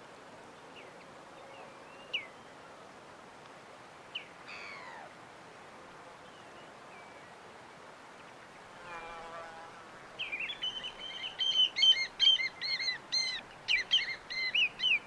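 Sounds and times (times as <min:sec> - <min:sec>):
background hiss: 0:00.0 - 0:15.0
birds chirping: 0:10.2 - 0:15.0.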